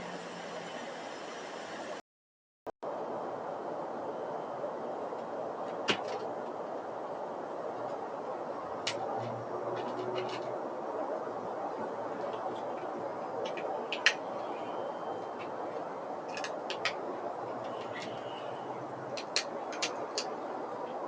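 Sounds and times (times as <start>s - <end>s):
steady background hum: 2.9s - 21.0s.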